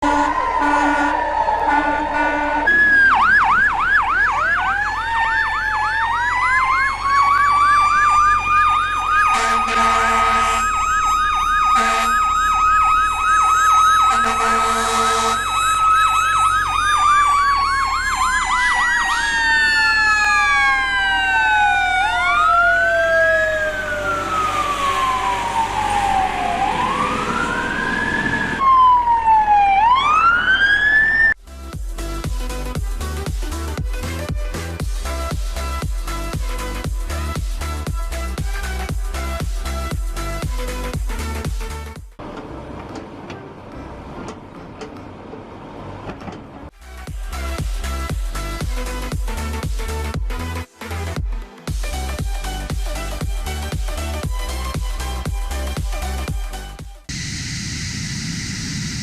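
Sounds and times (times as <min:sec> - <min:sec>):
horn blasts: 0:00.0 - 0:02.9, 0:09.3 - 0:10.8, 0:11.7 - 0:12.2, 0:14.0 - 0:15.6
emergency siren: 0:00.0 - 0:31.4, 0:52.7 - 0:59.0.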